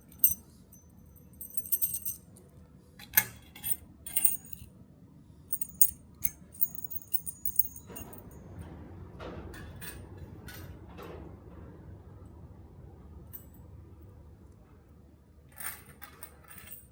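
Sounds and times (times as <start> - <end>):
metal keys jingling: 0.0 - 2.4, 3.1 - 4.7, 5.5 - 8.3.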